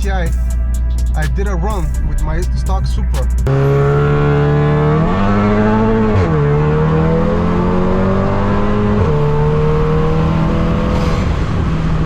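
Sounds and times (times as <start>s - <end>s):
car engine accelerating hard: 3.4s - 12.0s.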